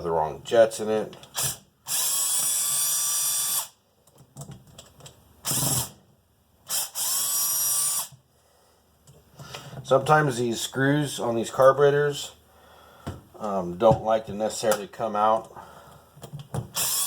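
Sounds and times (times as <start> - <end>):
cordless drill whine: 1.4 - 3.8, 5.4 - 6.0, 6.7 - 8.2, 16.8 - 17.0.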